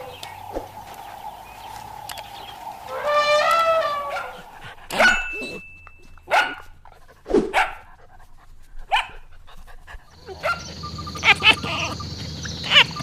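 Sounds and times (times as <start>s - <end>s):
falling animal call: 0.0s - 5.6s, 10.2s - 13.0s
dog barking: 3.6s - 5.6s, 6.2s - 6.8s, 7.4s - 7.9s, 8.9s - 9.3s, 10.2s - 13.0s.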